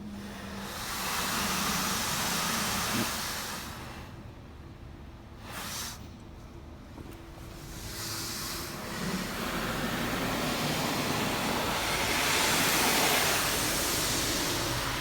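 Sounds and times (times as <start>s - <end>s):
car wash water spraying on car: 0.2s - 4.2s, 7.5s - 15.0s.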